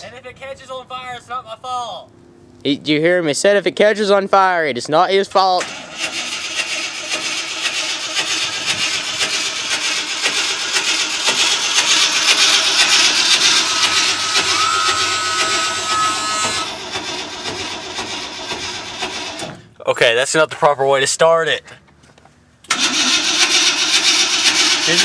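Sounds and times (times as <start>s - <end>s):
starter motor cranking engine: 5.6s - 19.6s, 22.7s - 25.0s.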